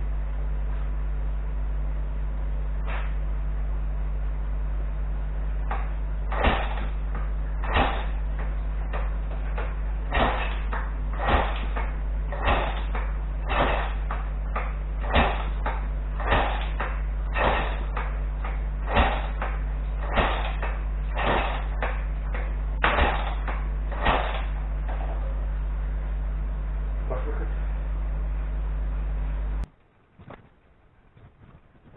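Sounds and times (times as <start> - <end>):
steady low hum: 0.0 - 31.9
sharp knocks: 5.6 - 25.3.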